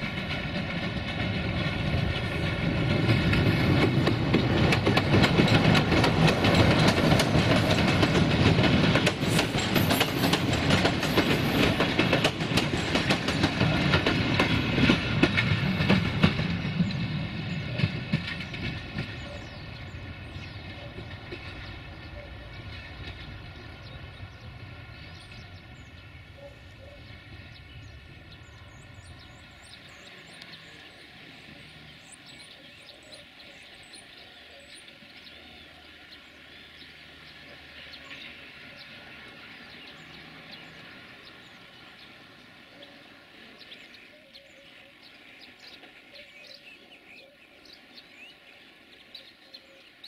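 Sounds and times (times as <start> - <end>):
train coaches rumbling on rails: 0.0 - 50.0
small birds chirping: 16.7 - 50.0.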